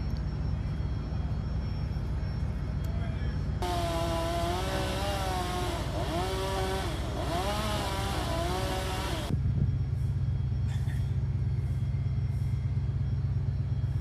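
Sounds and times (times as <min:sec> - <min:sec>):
low engine rumble: 0:00.0 - 0:14.0
small engine revving: 0:03.6 - 0:09.3.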